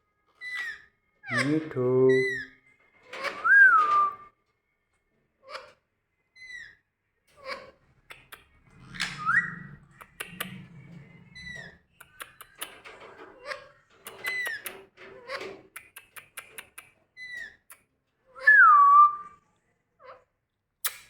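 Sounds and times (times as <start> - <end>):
parrot whistling: 3.3 - 4.3, 9.0 - 9.8, 18.4 - 19.4
sharp clicks: 8.1 - 10.6, 12.0 - 12.9, 15.7 - 16.9.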